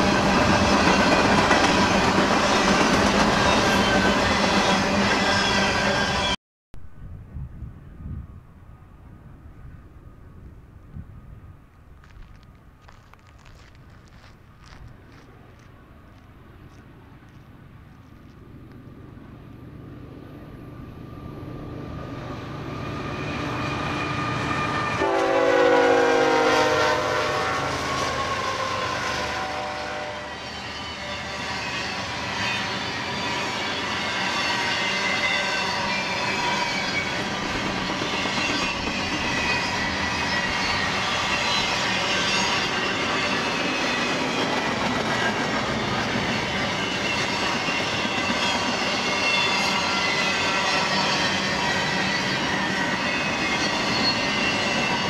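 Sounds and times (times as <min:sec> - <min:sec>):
freight train passing: 0:00.0 - 0:55.0
high-pitched wheel squeal: 0:03.3 - 0:06.4, 0:29.6 - 0:44.6, 0:46.0 - 0:55.0
locomotive air horn: 0:23.8 - 0:31.0
train wheel clatter: 0:32.6 - 0:55.0.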